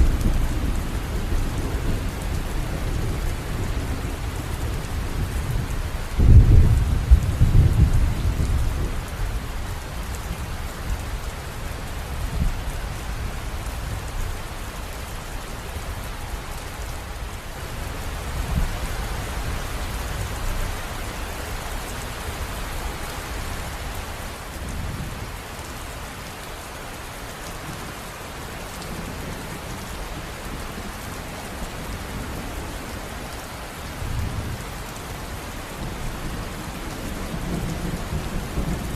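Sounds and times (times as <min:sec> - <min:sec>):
river water rushing and splashing: 0:14.4 - 0:34.0.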